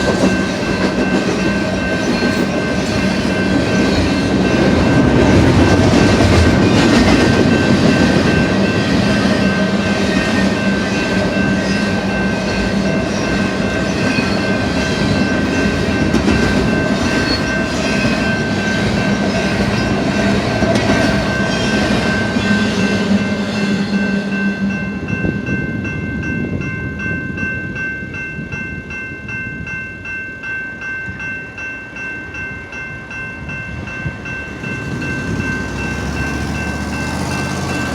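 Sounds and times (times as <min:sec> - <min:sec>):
train wheels clacking on rails: 0:00.0 - 0:25.3, 0:34.0 - 0:37.9.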